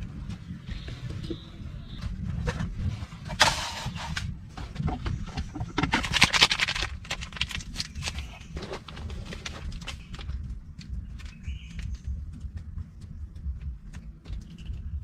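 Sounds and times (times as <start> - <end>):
steady low rumble: 0.0 - 15.0
irregular clicks and knocks: 3.3 - 15.0.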